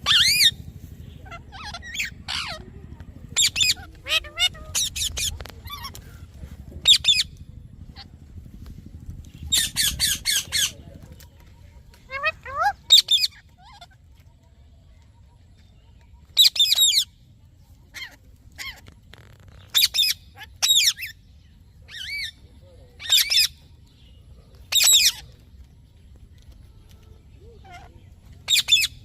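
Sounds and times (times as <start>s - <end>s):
parrot screeching: 0.0s - 0.6s, 1.2s - 2.6s, 3.4s - 5.9s, 12.1s - 14.0s.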